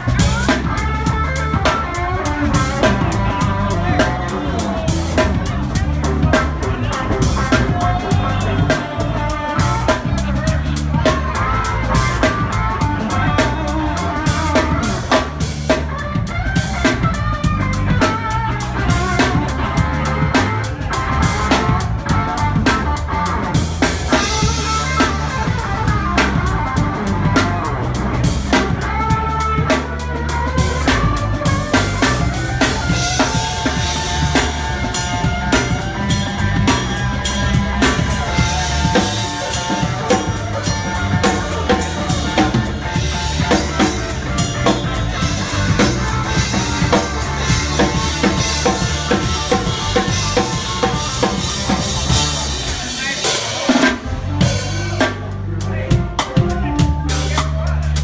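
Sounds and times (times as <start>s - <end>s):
live rock band: 0.0s - 58.0s
loud drum kit: 0.0s - 58.0s.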